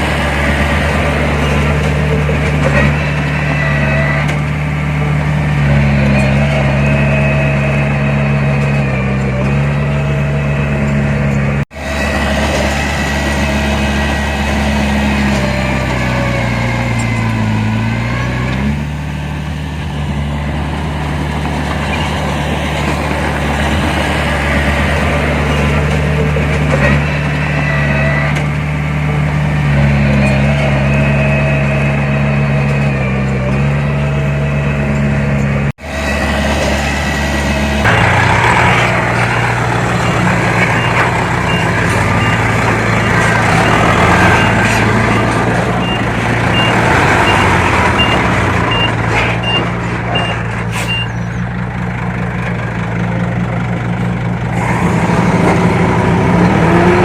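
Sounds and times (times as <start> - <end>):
heavy diesel engines running: 0.0 - 57.0
reversing alarm beeping: 37.9 - 38.9, 39.9 - 51.2.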